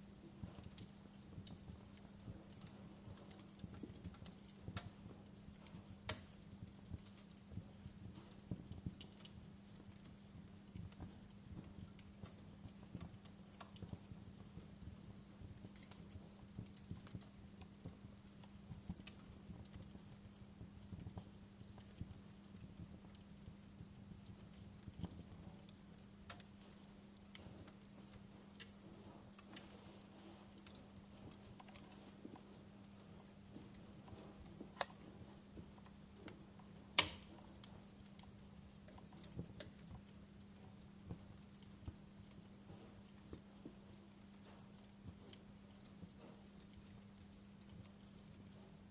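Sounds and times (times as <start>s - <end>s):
faint low hum: 0.0s - 48.9s
wood fire crackling: 0.0s - 48.9s.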